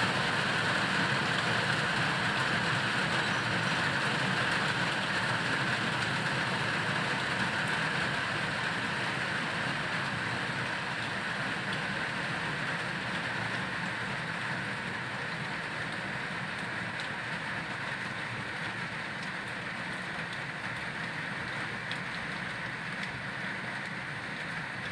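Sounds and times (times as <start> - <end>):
heavy rain: 0.0 - 24.9.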